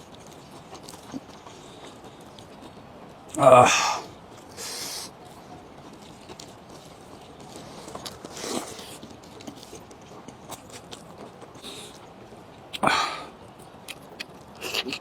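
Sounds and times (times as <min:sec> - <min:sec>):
person chewing: 0:00.7 - 0:03.6, 0:07.5 - 0:12.1, 0:12.8 - 0:15.0
mouth smack: 0:13.9 - 0:15.0.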